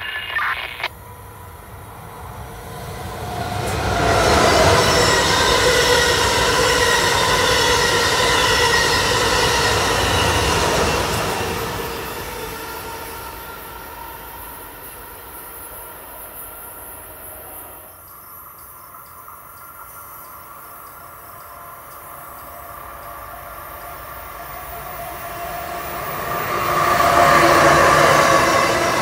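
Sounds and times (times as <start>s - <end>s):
insect chirping: 0.0s - 0.9s, 18.0s - 23.1s
train approaching on rails: 1.0s - 29.0s.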